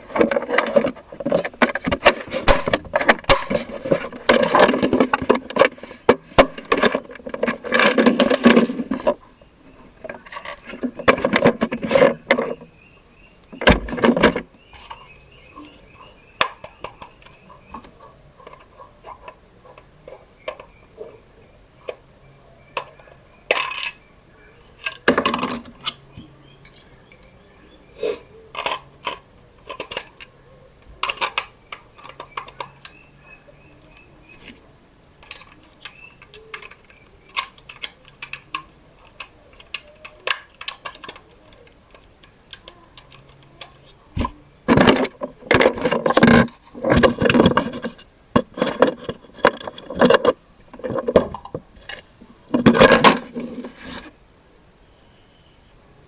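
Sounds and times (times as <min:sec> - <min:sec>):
plastic toy parts clicking and rattling: 0:00.0 - 0:09.2, 0:10.0 - 0:12.7, 0:22.8 - 0:24.0, 0:24.8 - 0:27.3, 0:28.5 - 0:33.0, 0:33.9 - 0:54.2.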